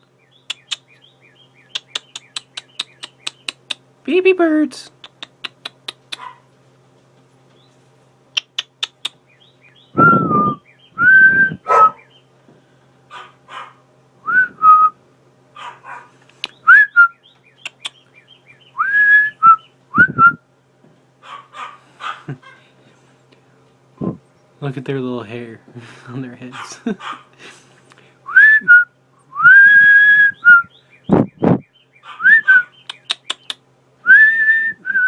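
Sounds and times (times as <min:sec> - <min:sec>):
dog whining: 0:11.3 - 0:12.0, 0:32.1 - 0:32.7.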